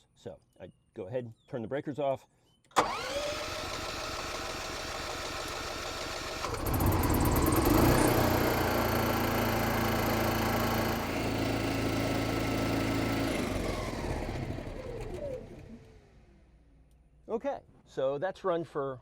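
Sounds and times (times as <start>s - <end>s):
generator engine running: 2.8s - 16.4s.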